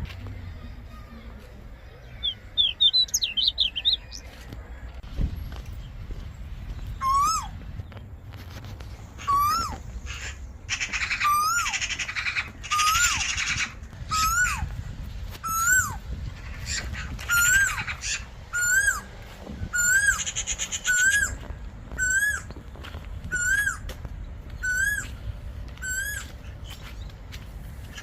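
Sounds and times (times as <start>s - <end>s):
bird calling harshly: 2.1s - 4.3s, 6.9s - 7.6s, 9.2s - 14.7s, 15.4s - 22.5s, 23.3s - 23.9s, 24.6s - 25.2s, 25.8s - 26.8s.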